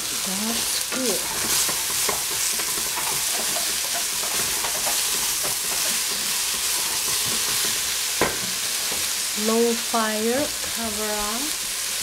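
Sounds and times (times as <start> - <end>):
eggplant sizzling in a pot: 0.0 - 12.0
wooden spatula scraping: 1.0 - 9.1.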